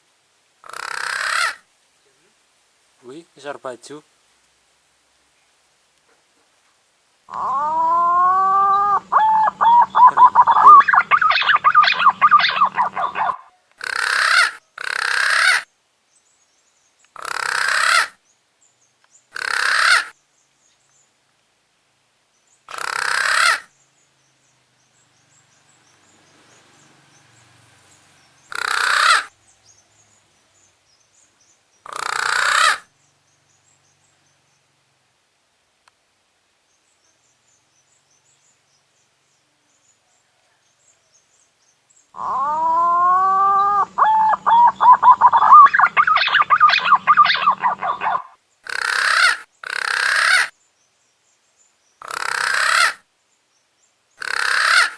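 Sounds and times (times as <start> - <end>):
whistled warbling bird call: 7.3 - 13.6, 42.2 - 48.4
hissing breathy calls: 7.3 - 15.6, 42.2 - 50.5.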